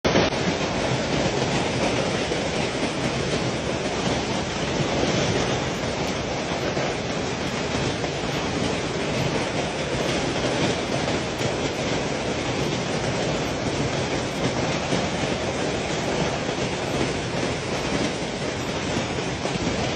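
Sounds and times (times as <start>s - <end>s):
storm wind rushing: 0.1s - 19.9s.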